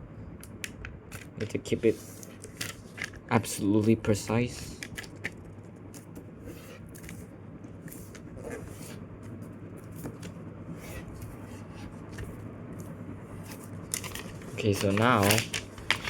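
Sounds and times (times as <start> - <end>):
low steady hum: 0.0 - 16.0
paper rubbing and scraping: 6.4 - 7.2, 7.8 - 9.0, 13.4 - 16.0
crisp paper creasing ticks: 13.9 - 16.0.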